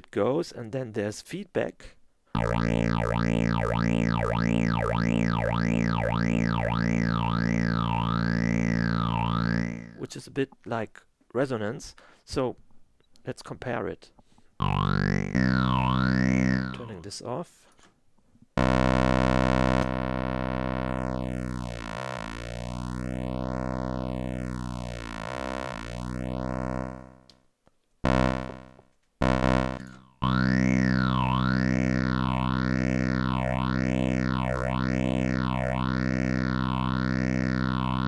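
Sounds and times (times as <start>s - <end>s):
buzzy synthesizer tone with phaser: 2.4s - 10.0s, 14.6s - 17.1s, 18.6s - 27.3s, 28.1s - 38.0s
short synthesizer notes: 2.4s - 10.0s, 14.6s - 17.1s, 18.6s - 27.2s, 28.1s - 38.0s.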